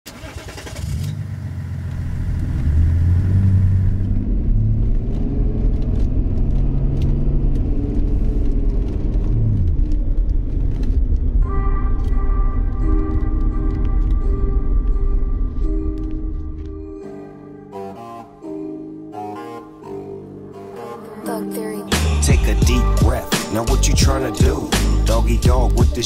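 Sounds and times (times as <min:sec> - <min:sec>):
diesel car engine running: 0:00.1 - 0:16.8, 0:22.0 - 0:26.0
music: 0:11.4 - 0:26.0.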